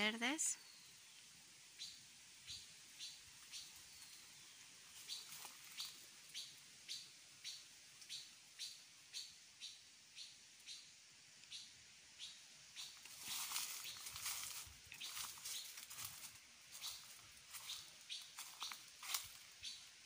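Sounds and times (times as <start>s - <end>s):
small bird chirping: 0.0s - 20.0s.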